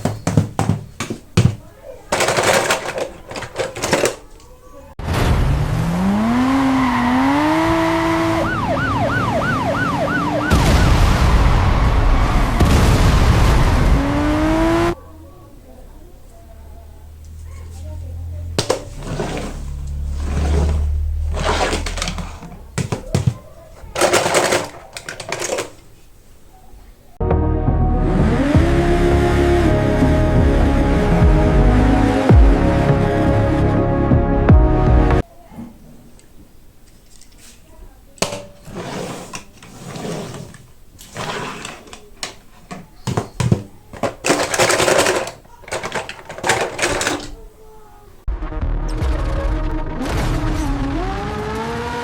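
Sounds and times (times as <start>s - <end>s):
music: 27.2s - 35.2s, 48.3s - 51.4s.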